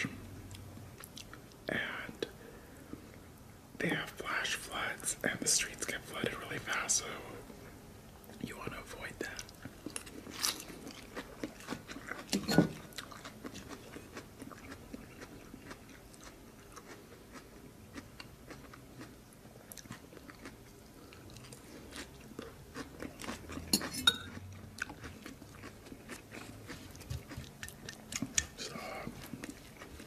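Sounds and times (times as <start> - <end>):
person chewing crunchy food: 9.0 - 30.0.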